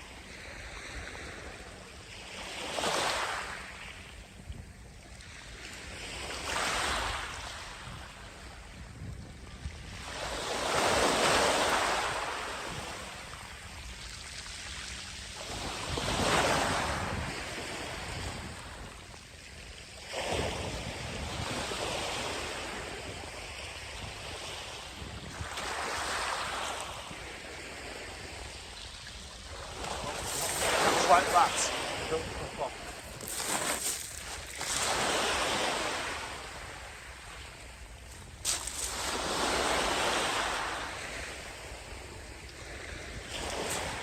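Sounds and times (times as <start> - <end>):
sea waves breaking on sand: 14.3 - 19.0, 20.0 - 44.0.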